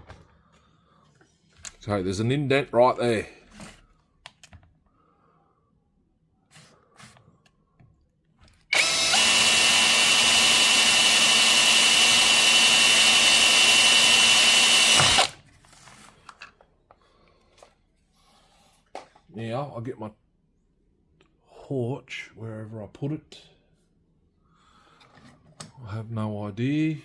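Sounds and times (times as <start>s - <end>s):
electric drill running: 8.7s - 15.4s.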